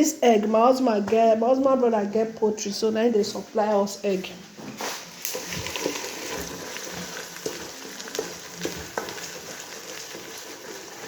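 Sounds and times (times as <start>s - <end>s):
food sizzling in a pan: 4.8s - 11.0s.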